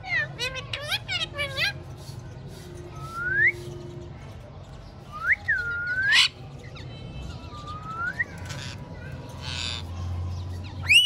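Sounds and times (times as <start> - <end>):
parrot squawk: 0.0 - 1.8.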